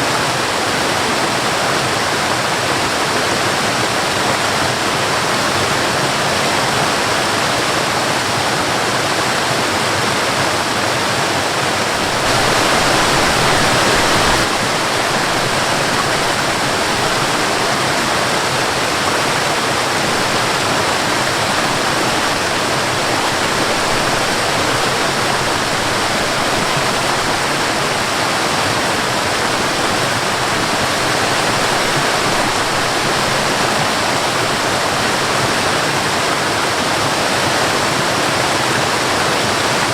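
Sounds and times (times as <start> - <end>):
waterfall and rushing river: 0.0 - 39.9.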